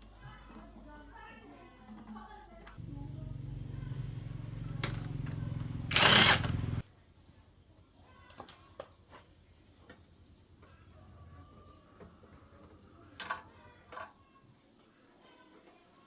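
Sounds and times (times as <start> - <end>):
faint low hum: 2.8 - 6.8.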